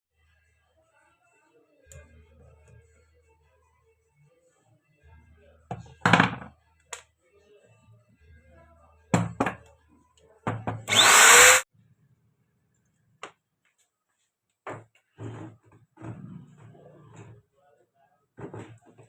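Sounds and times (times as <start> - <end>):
angle grinder rushing whine: 10.9 - 11.6.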